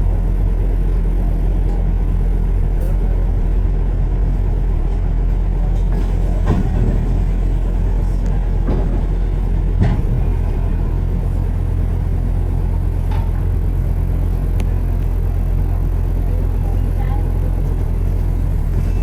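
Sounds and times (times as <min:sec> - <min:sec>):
vehicle rumbling on road: 0:00.0 - 0:19.0
knocks and rattles: 0:04.7 - 0:11.0.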